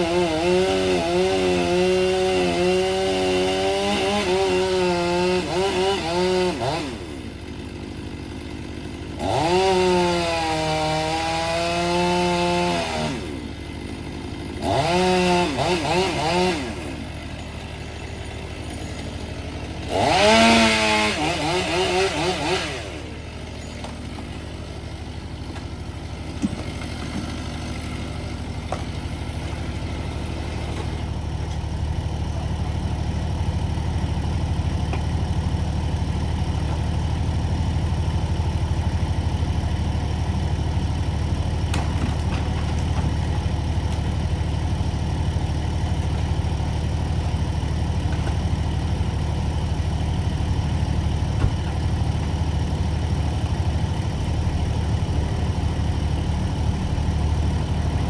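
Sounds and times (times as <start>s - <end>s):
large engine humming: 0.0s - 58.0s.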